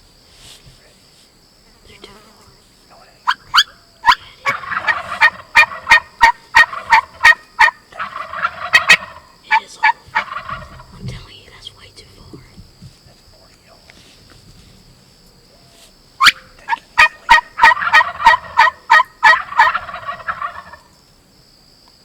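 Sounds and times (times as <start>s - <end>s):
wild turkeys calling: 3.2s - 11.8s, 15.5s - 21.0s.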